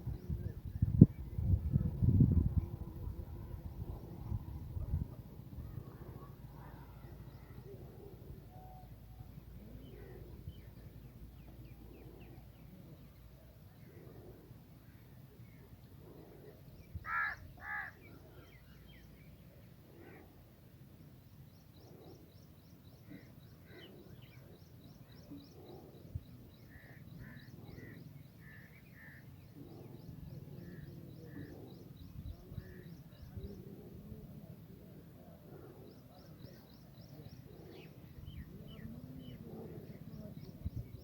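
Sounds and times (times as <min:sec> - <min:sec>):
loud bird calls: 0:16.2 - 0:19.0.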